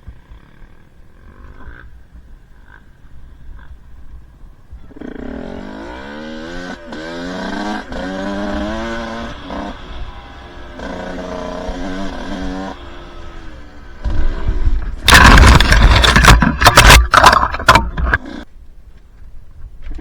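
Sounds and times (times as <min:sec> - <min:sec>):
dirt bike engine revving: 0:04.7 - 0:18.5.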